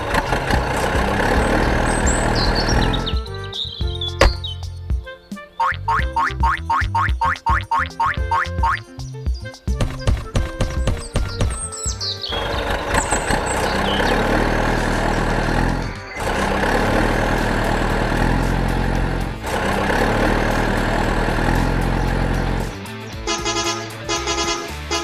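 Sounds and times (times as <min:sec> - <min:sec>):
heavy vehicle engine running: 0:00.0 - 0:03.6, 0:12.3 - 0:25.0
light rhythmic music: 0:00.0 - 0:25.0.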